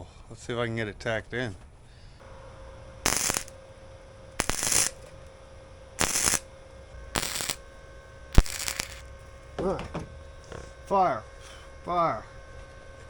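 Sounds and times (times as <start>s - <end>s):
crackling welding bursts: 3.0s - 3.6s, 4.4s - 5.1s, 6.0s - 7.7s, 8.3s - 9.1s.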